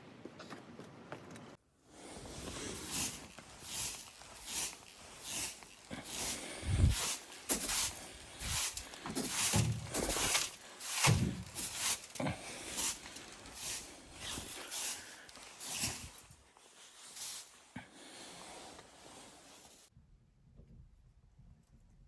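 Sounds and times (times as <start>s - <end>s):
footsteps crunching in snow: 0.1s - 19.9s.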